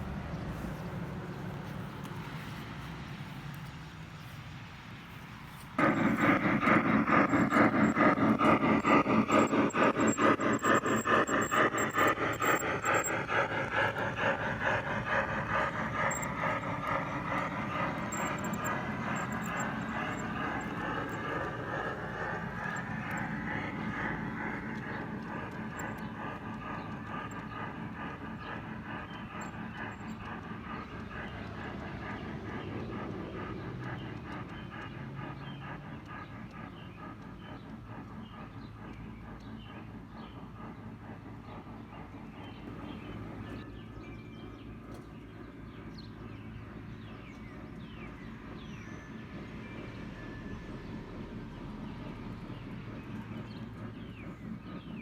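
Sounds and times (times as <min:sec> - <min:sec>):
model train running on track: 0:00.0 - 0:55.0.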